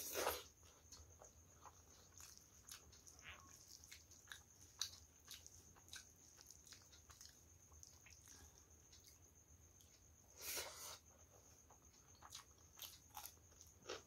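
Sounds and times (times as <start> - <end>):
soft chewing: 0.0 - 14.0.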